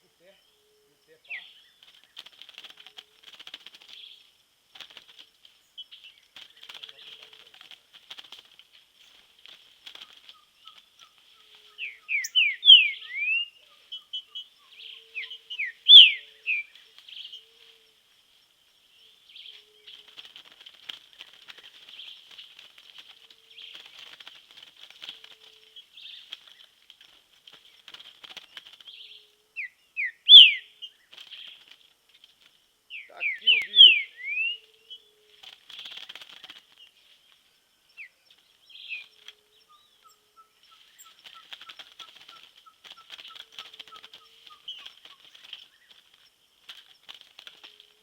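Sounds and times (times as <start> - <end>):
bird whistled song: 10.4 - 17.5, 29.0 - 31.0, 32.9 - 35.2.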